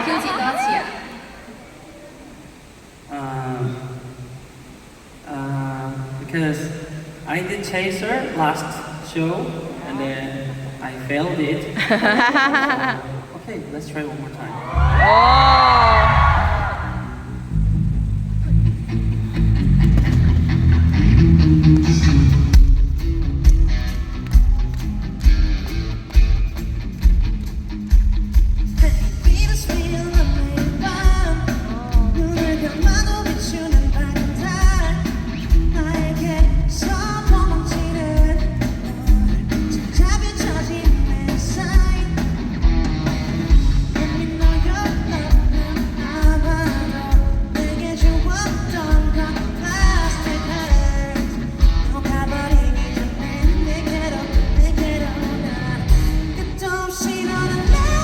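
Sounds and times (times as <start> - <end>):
live pop-rock band: 14.7 - 58.0
steady drum beat: 22.6 - 56.4
man singing: 28.8 - 42.2, 43.9 - 58.0.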